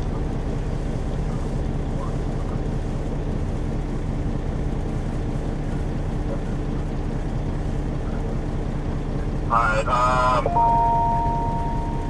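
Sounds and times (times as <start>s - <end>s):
vehicle engine running: 0.0s - 12.0s
faint hum: 4.8s - 12.0s.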